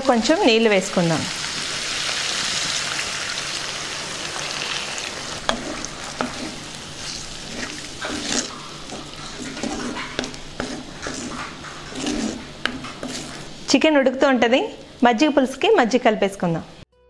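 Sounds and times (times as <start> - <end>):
water sizzling in hot oil: 0.1 - 13.8
spatula scraping clay pot: 5.4 - 13.8.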